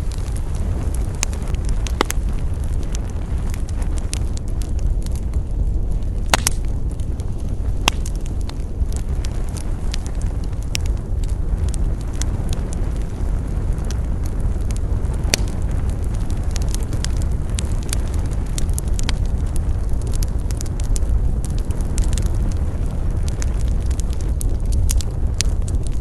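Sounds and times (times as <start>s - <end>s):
burning wood crackling and popping: 0.0s - 26.0s
fire flames rumbling: 0.0s - 26.0s.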